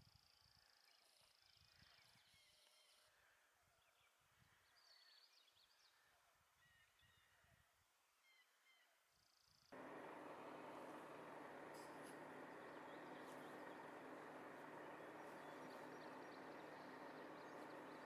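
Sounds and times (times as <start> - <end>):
faint bird chirps: 8.2 - 18.0.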